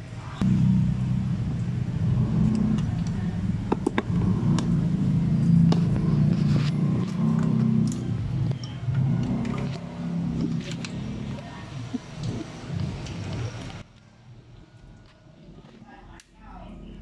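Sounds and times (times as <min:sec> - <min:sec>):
engine rumbling: 0:00.0 - 0:17.0.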